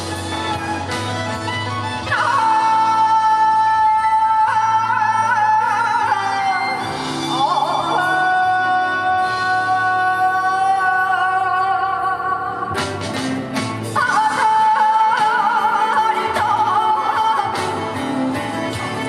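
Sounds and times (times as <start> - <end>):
musical accompaniment: 0.0 - 19.0
woman singing folk song: 2.0 - 6.8, 14.0 - 18.5.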